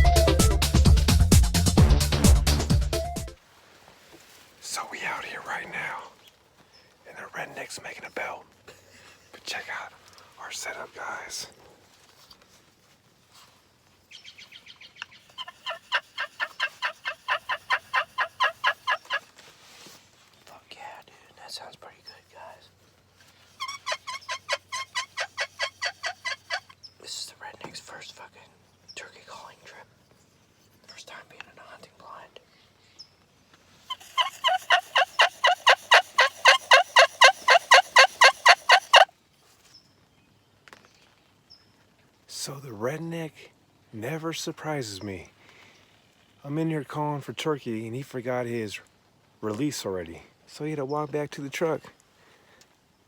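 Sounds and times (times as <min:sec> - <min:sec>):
turkey call yelps: 0:15.3 - 0:19.2, 0:23.6 - 0:26.7, 0:33.9 - 0:39.1.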